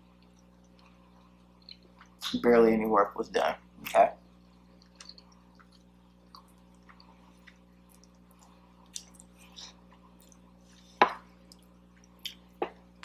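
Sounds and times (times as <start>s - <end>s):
mouth chewing clicks and smacks: 0.2s - 2.4s, 3.8s - 9.6s.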